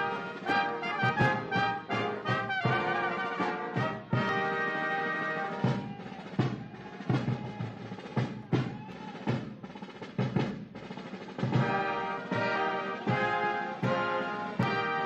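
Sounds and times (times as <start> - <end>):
held brass chords: 0.0 - 5.9, 11.5 - 15.0
snare drum strokes and rolls: 0.0 - 15.0.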